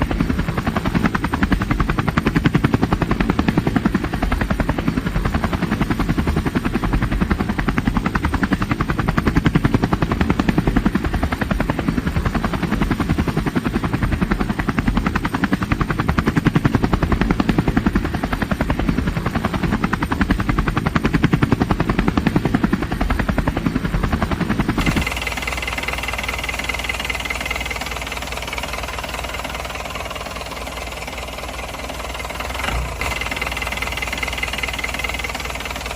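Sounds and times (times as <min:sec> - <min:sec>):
helicopter rotor chopping: 0:00.0 - 0:35.9
engine running: 0:24.6 - 0:35.9.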